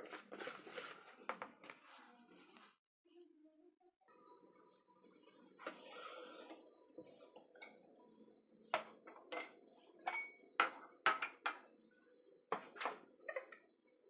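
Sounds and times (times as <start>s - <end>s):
utensil clinking against a dish: 8.7s - 11.7s.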